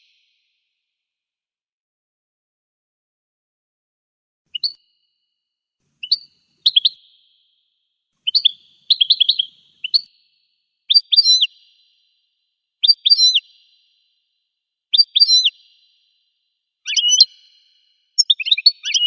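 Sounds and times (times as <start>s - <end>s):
bird chirping and twittering: 4.5s - 4.8s, 6.0s - 7.0s, 8.2s - 10.1s, 10.9s - 11.5s, 12.8s - 13.4s, 14.9s - 15.5s, 16.9s - 17.5s, 18.2s - 19.0s.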